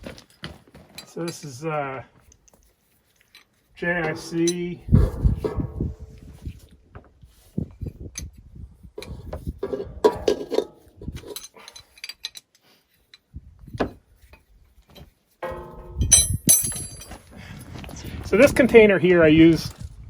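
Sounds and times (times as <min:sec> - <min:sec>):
hand tools clicking and clinking: 0:03.2 - 0:05.8, 0:09.0 - 0:13.2, 0:15.4 - 0:17.2
metal ringing: 0:03.8 - 0:06.2, 0:15.4 - 0:17.2
metallic clatter: 0:03.8 - 0:06.4, 0:09.0 - 0:12.4, 0:15.4 - 0:17.2.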